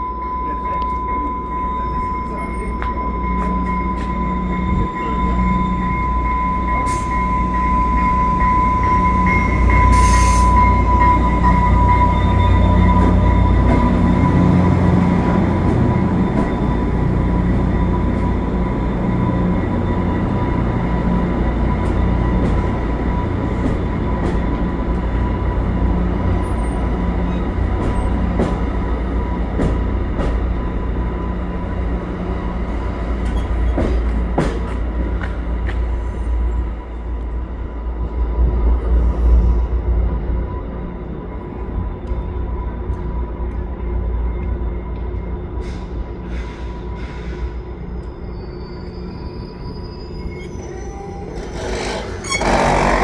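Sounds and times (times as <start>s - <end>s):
train rumble: 0.0s - 48.3s, 49.1s - 53.0s
high-pitched wheel squeal: 9.4s - 14.7s, 48.2s - 53.0s.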